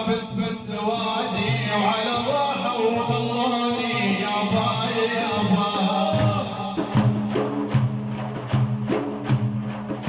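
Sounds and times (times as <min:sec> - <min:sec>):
person singing a lament: 0:00.0 - 0:07.1
hand drum rhythm: 0:00.0 - 0:10.0.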